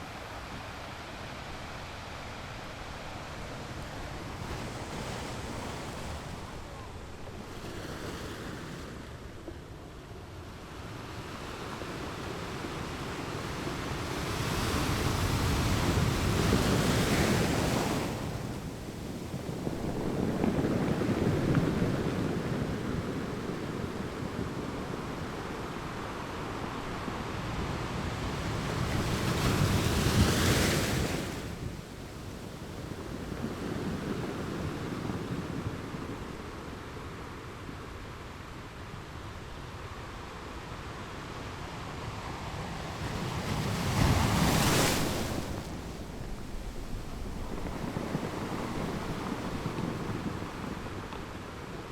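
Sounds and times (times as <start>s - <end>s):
ocean waves surging: 41.7s - 51.9s.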